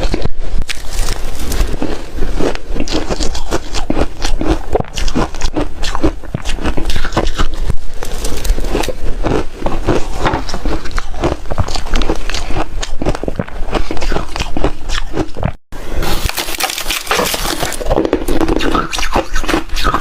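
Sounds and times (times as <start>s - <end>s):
ice being chewed: 0.0s - 20.0s.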